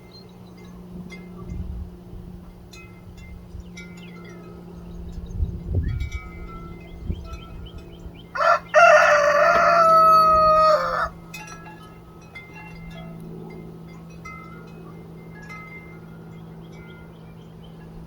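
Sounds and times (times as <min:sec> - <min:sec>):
rooster crowing: 0:08.3 - 0:11.2.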